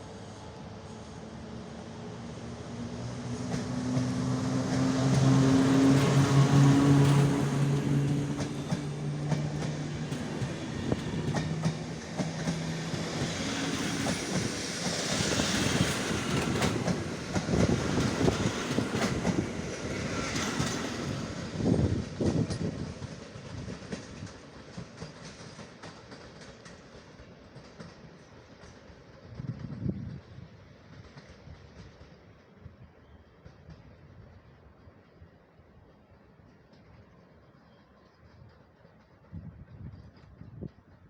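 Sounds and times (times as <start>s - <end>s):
passenger train rolling past: 0.0s - 41.0s
wheels clicking over rail joints: 3.5s - 30.2s.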